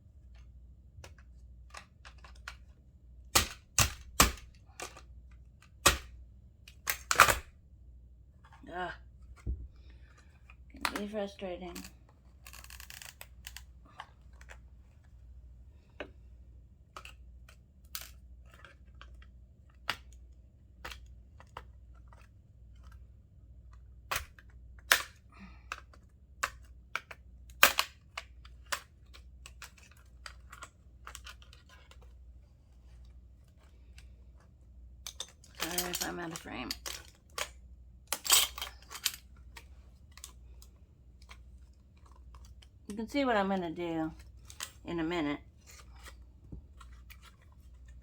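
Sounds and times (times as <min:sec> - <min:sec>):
clicks of small metal parts: 0:35.0 - 0:41.4.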